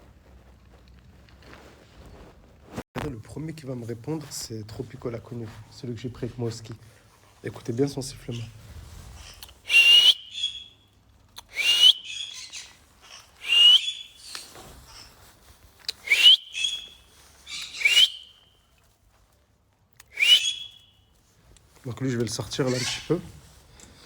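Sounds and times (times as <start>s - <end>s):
parrot whistling rising call: 9.7s - 10.7s, 11.5s - 12.6s, 13.4s - 14.1s, 16.0s - 16.9s, 17.5s - 18.3s, 20.1s - 20.8s.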